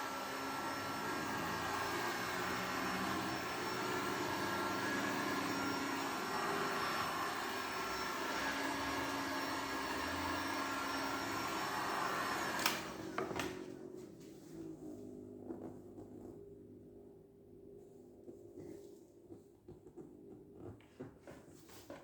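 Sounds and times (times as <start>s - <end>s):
electric fan motor with air rush: 0.0s - 15.2s.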